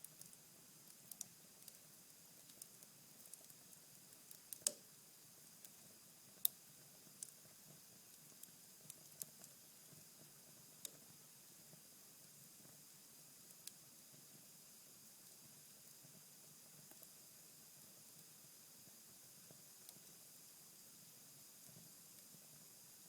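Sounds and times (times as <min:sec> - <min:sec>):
fire embers crackling: 0:00.1 - 0:04.8
sharp fire snaps: 0:04.3 - 0:04.8.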